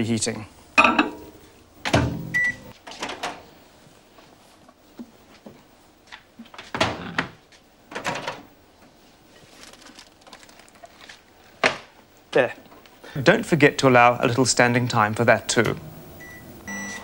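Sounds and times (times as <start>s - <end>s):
microwave door clunk: 1.8s - 2.4s
microwave beep: 2.2s - 2.7s, 16.2s - 17.0s.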